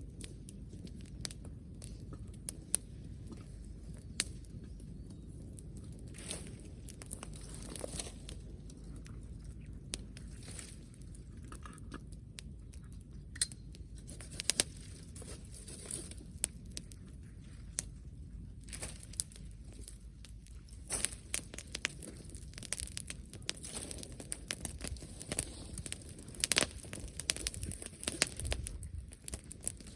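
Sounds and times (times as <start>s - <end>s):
dry plant material crackling: 0.0s - 29.9s
steady low rumble: 0.0s - 29.9s.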